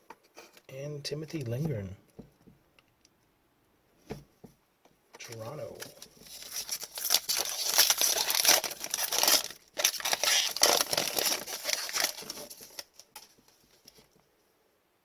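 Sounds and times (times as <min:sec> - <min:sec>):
plastic wrapper crinkling: 0:05.2 - 0:14.1.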